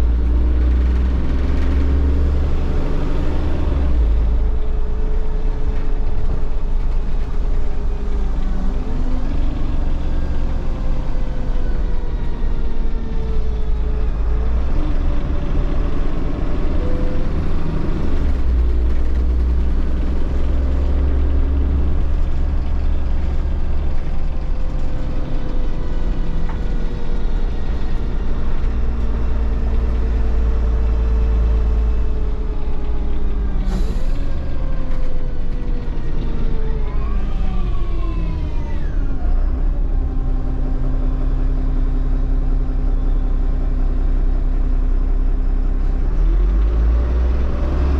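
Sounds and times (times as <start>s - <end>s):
bus diesel engine rumble: 0.0s - 47.9s.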